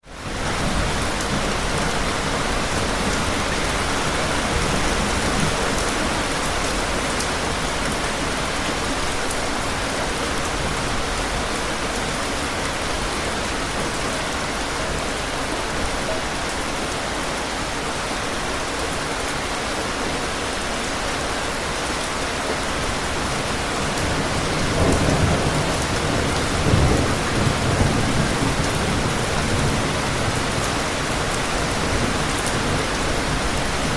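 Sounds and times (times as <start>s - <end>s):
heavy rain pattering: 0.0s - 33.9s
rolling thunder: 24.0s - 30.9s.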